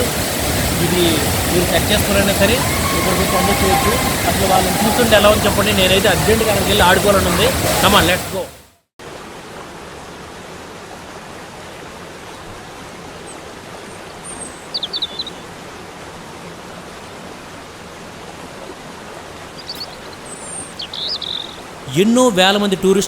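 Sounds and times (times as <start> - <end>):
waterfall rushing: 0.0 - 23.0
short high bird chirps: 19.7 - 21.6.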